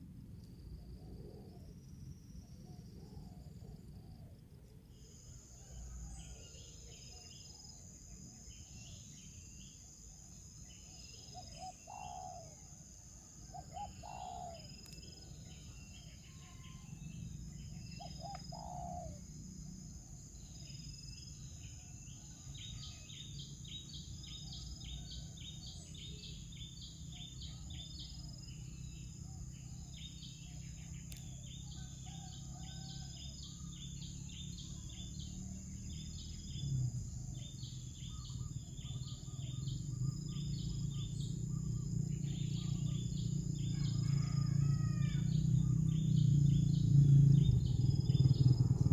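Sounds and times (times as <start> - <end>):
high-pitched insect whine: 4.9 - 48.9
birds chirping: 7.0 - 19.5, 20.3 - 48.9
low rising bird calls: 10.8 - 12.8, 13.4 - 19.5, 21.5 - 48.9.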